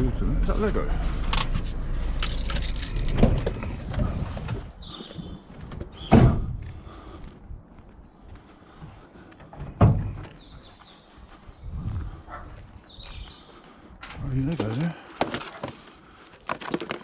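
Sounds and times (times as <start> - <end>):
loud thuds of heavy objects: 6.1 - 6.6
faint bird chirps: 10.4 - 13.9.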